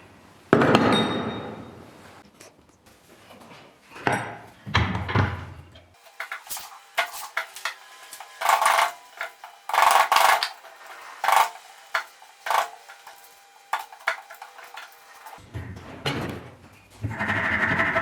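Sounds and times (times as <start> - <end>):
hand tools scraping wood: 5.9 - 18.0.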